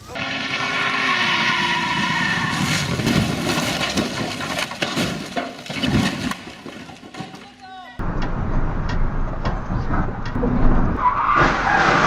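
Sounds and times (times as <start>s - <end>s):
rough rumbling vehicle noise: 8.0s - 12.0s.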